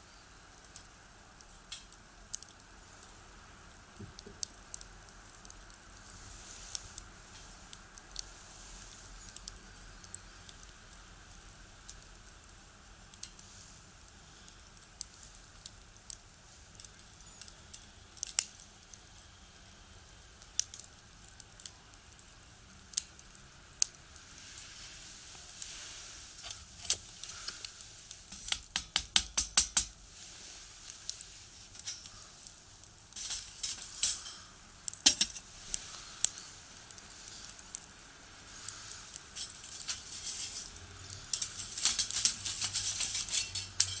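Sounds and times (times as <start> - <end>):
firewood crackling in a stove: 0.0 - 44.0.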